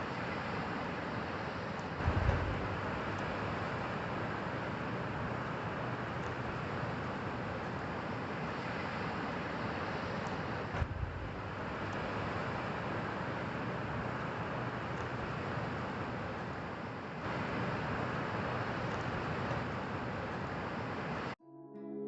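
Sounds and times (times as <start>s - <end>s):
road and tyre noise: 0.0s - 21.4s
low thump: 2.0s - 2.8s, 10.8s - 11.4s.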